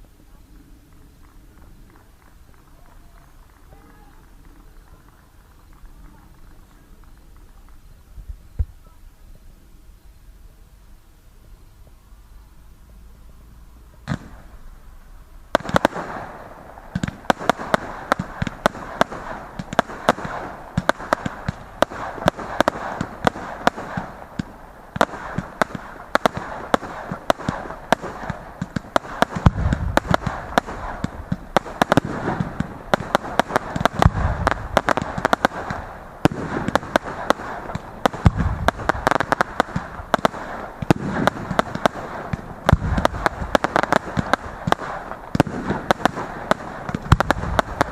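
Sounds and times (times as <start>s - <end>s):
fireworks crackling and bangs: 0.0s - 47.9s
deep firework booms: 14.0s - 14.9s, 15.5s - 47.9s.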